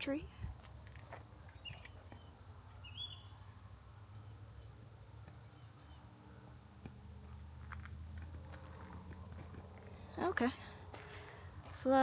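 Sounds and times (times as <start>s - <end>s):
small birds chirping: 0.7s - 3.5s, 4.2s - 6.2s.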